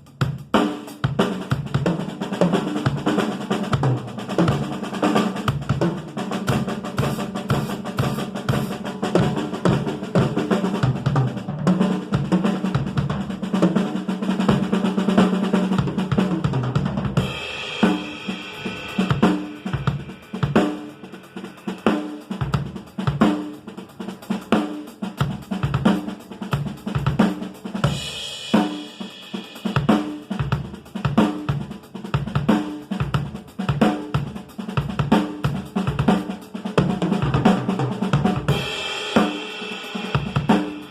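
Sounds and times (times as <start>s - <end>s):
drum fills and rolls: 0.0s - 40.9s
drum kit beat: 0.0s - 40.9s
cymbal crash: 17.2s - 21.9s.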